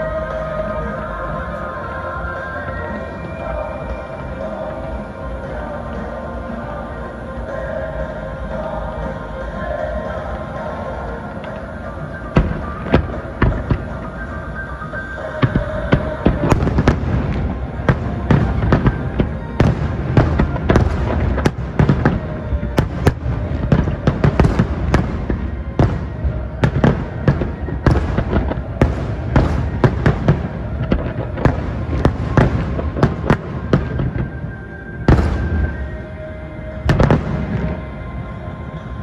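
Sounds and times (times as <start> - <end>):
fireworks bangs: 11.4 - 38.9.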